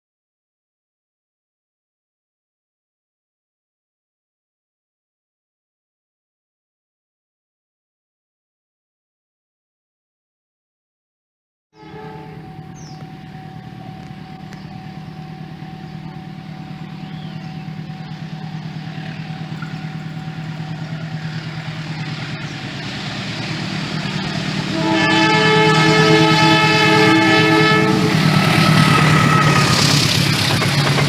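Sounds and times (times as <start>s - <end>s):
locomotive air horn chord: 11.8s - 30.7s
diesel locomotive engines pulsing: 11.8s - 31.0s.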